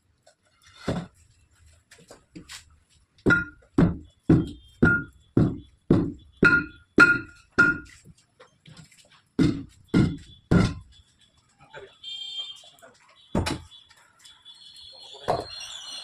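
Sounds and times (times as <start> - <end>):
hammer blows on steel wheel: 3.3 - 7.9.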